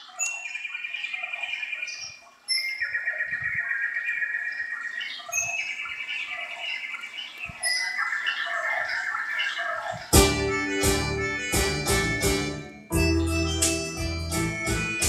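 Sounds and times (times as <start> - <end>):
bird trilling: 0.0 - 10.8.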